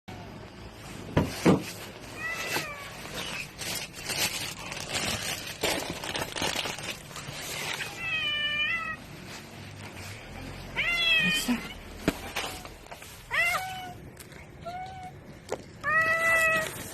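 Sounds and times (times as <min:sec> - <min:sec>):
rustling: 0:00.7 - 0:16.9
cat meowing: 0:07.9 - 0:09.0, 0:10.7 - 0:11.8, 0:13.3 - 0:14.0, 0:15.8 - 0:16.9.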